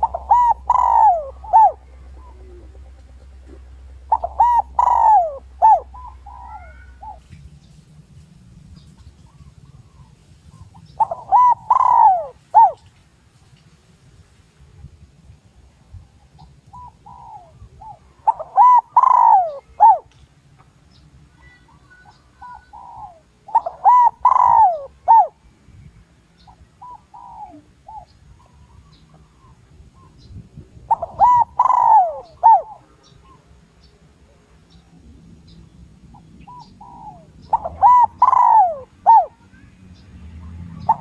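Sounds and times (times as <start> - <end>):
dove cooing: 0.0 - 7.8, 8.8 - 12.9, 16.3 - 20.2, 21.4 - 25.4, 26.4 - 30.2, 30.8 - 33.5, 36.1 - 41.0.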